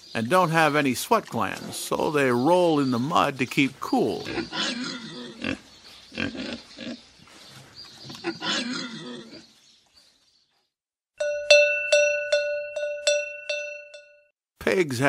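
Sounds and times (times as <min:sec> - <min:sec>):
pig noises: 0:01.0 - 0:09.6
cowbell ringing: 0:11.2 - 0:14.3.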